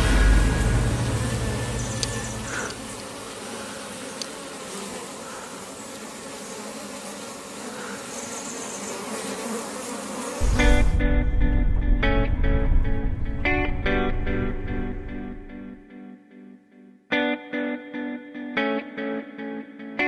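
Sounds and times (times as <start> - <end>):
bees buzzing: 0.0 - 11.1
guitar music: 10.5 - 20.0.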